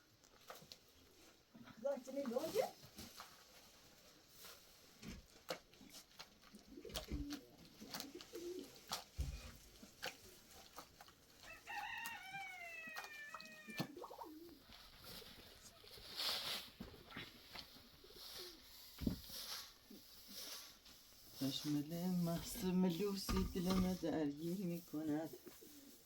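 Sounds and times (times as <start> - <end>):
pigeons cooing: 6.6 - 9.5, 13.6 - 15.9
rooster crowing: 11.5 - 13.8.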